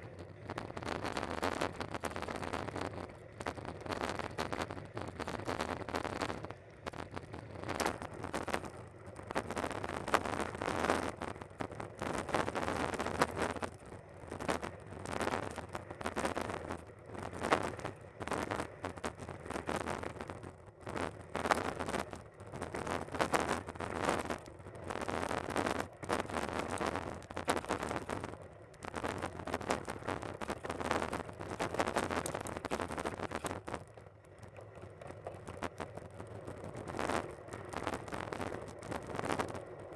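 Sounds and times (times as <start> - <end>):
bicycle riding rattle: 25.8 - 39.9.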